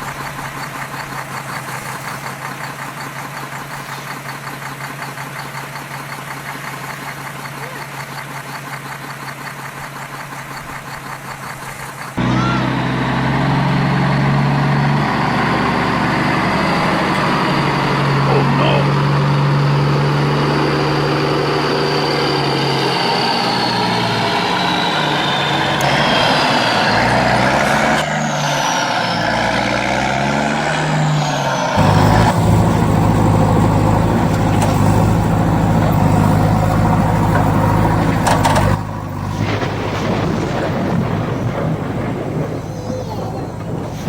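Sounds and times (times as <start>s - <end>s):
vehicle motor running: 0.0s - 44.0s
high whine sliding up and down: 12.2s - 40.2s.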